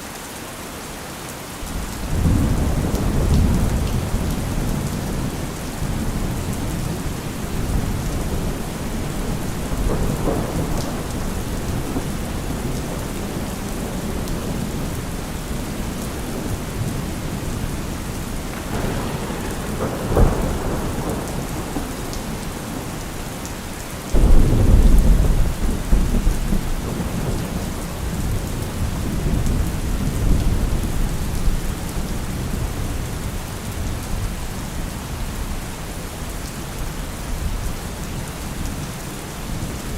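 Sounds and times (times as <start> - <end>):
steady rain: 0.0 - 39.9
rolling thunder: 1.7 - 35.6
loud thunderclap: 1.8 - 32.8.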